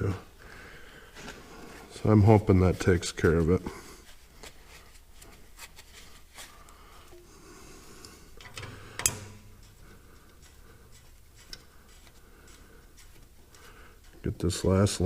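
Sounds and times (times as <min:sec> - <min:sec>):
faint clicks and taps of hand work: 0:10.2 - 0:14.3.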